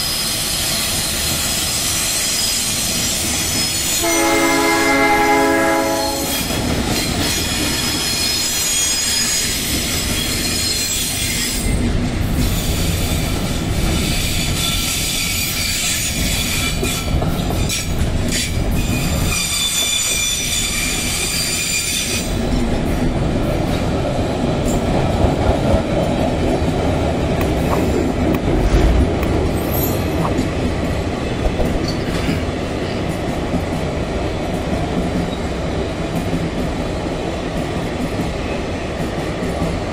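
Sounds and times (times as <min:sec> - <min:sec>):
train wheels squealing on rails: 0:00.0 - 0:23.9, 0:29.5 - 0:37.0
freight train rumbling: 0:00.0 - 0:39.9.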